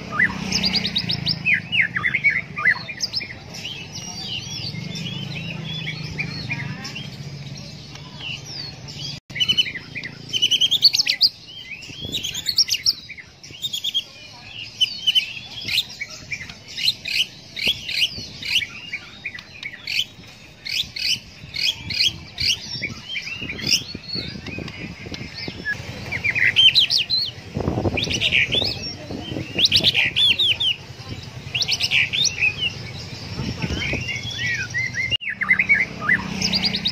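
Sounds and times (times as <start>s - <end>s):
bird singing whistles and trills: 0.0s - 7.2s, 7.9s - 36.9s.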